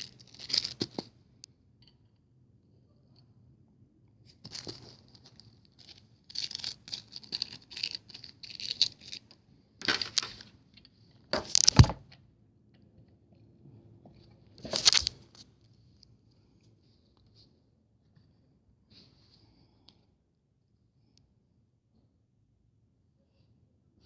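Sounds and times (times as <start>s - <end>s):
packaging rustling and tearing: 0.0s - 1.1s, 4.5s - 10.5s, 11.4s - 12.0s, 14.6s - 15.2s.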